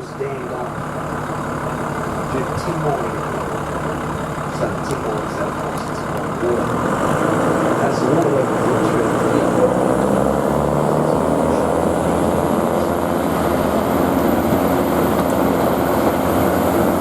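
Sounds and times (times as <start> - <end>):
diesel rail motor running: 0.0 - 17.0.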